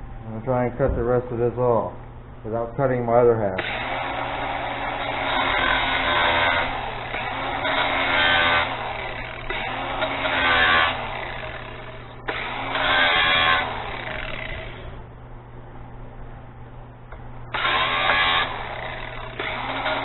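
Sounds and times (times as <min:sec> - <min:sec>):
angle grinder cutting steel cable: 0:03.6 - 0:15.0, 0:17.5 - 0:20.0.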